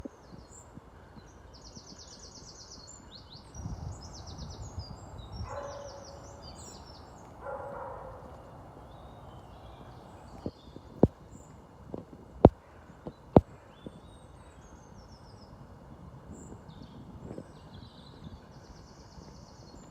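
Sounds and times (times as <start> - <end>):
small birds trilling: 3.4 - 11.6
low bird calls: 3.5 - 11.5.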